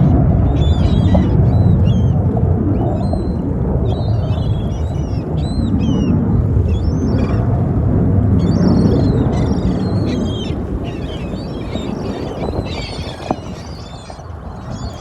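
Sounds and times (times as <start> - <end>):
birds chirping: 0.0 - 7.6, 8.4 - 15.0
deep jet rumble: 0.0 - 15.0.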